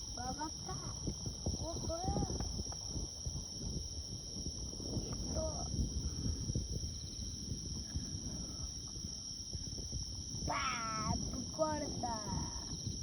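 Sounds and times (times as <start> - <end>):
insects shrilling: 0.0 - 13.0
faint voice: 10.5 - 12.7.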